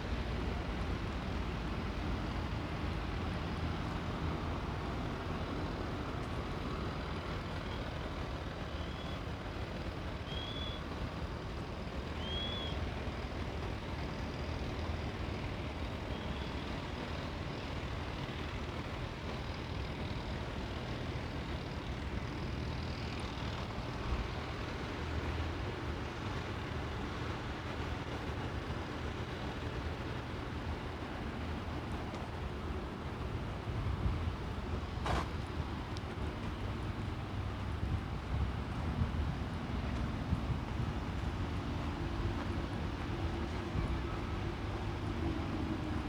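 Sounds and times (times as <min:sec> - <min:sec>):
low traffic hum: 0:13.6 - 0:46.0.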